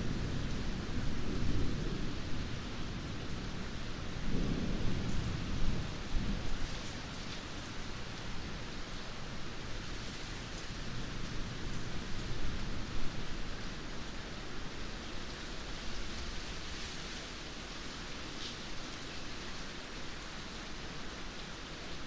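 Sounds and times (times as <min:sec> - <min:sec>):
low rolling thunder: 0:00.0 - 0:08.7
steady rain falling: 0:00.0 - 0:22.0.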